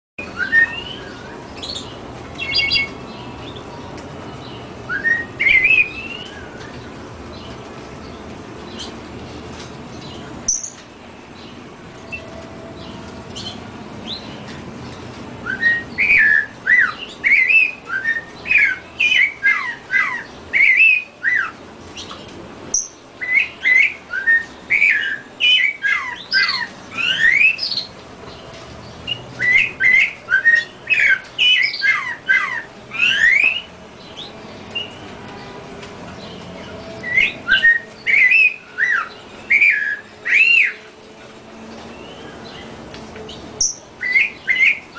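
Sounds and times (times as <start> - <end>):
bird singing whistled notes: 0.2 - 3.7, 4.4 - 6.9, 10.0 - 10.8, 15.4 - 27.9, 29.0 - 35.0, 36.7 - 40.8, 43.6 - 44.9.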